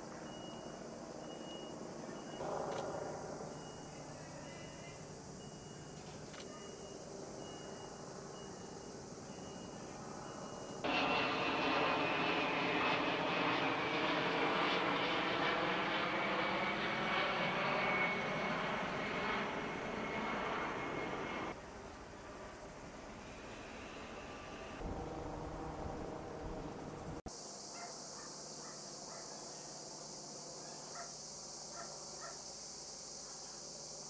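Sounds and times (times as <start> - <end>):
aircraft engine whining: 0.2 - 27.3.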